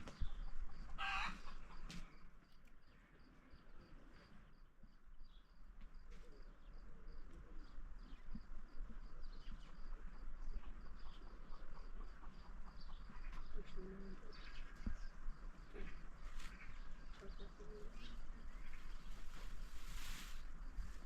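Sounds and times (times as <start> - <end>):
chicken clucking: 0.5 - 2.0, 10.6 - 14.2
chicken squawking: 1.0 - 1.7.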